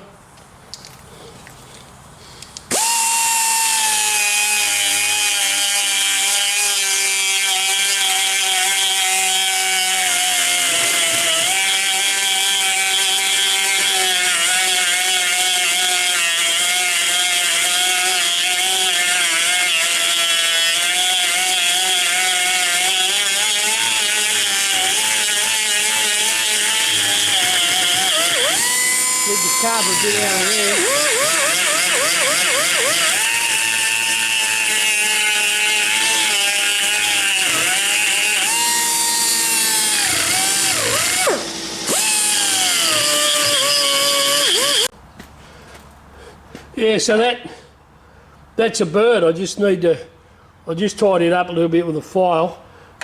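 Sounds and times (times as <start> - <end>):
die grinder whining into steel: 2.7 - 44.9.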